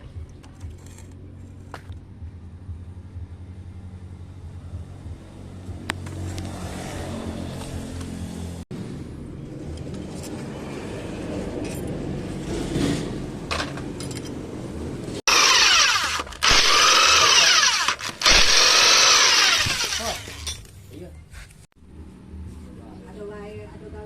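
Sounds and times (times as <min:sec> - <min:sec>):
power tool whining: 0:15.3 - 0:20.6.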